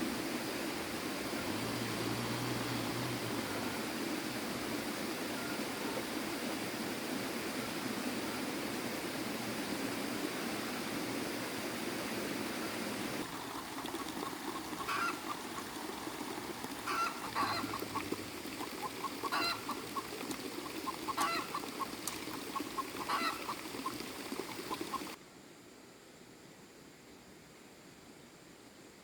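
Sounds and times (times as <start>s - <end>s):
poultry honking call: 14.8s - 15.6s, 16.8s - 18.2s, 18.8s - 20.1s, 20.8s - 21.7s, 22.5s - 23.6s.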